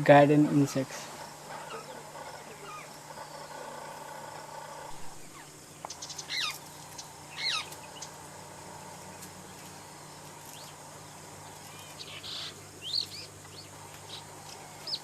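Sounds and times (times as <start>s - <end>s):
sharp downward bird calls: 4.8s - 8.2s.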